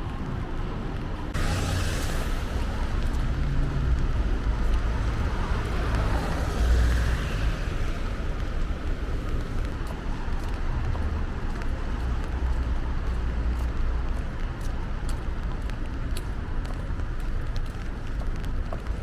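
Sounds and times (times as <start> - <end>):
cars on wet roads: 0.0 - 19.0
rain: 0.0 - 19.0.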